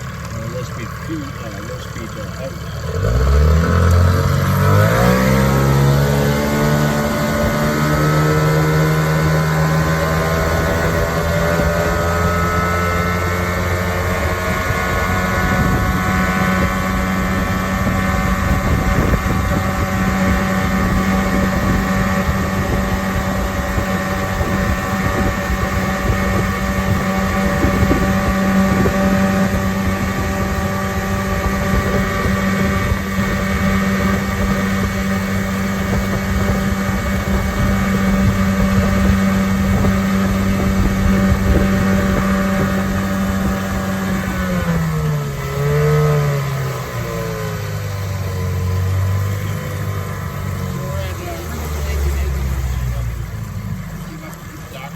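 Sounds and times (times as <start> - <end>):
outboard motor running: 0.0 - 54.9.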